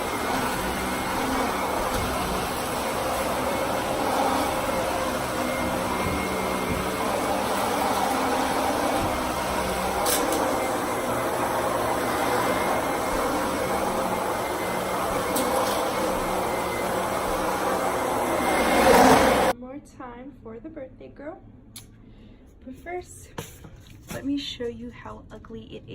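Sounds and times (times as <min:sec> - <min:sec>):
vacuum cleaner running: 0:00.0 - 0:19.6.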